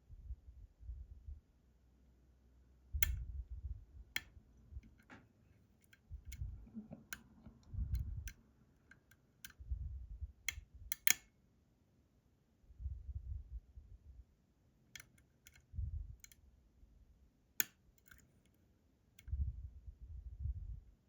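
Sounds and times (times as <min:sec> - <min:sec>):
lock pick clicking against pins: 0:04.1 - 0:05.2, 0:05.8 - 0:09.6, 0:10.4 - 0:11.3, 0:14.9 - 0:16.4, 0:17.6 - 0:18.6.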